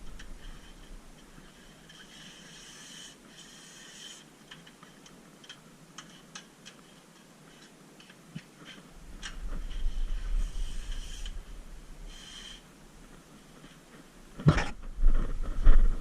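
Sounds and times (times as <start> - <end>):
spray gun hissing: 9.9 - 12.7.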